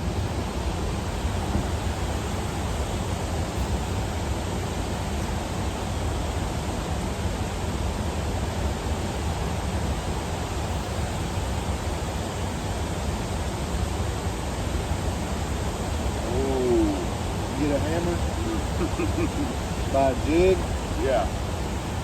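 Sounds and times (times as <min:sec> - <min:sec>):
boat engine rumble: 0:14.5 - 0:22.0.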